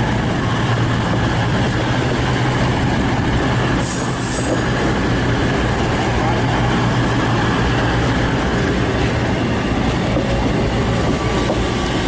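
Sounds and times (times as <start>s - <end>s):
train diesel engines droning: 0.0s - 12.0s.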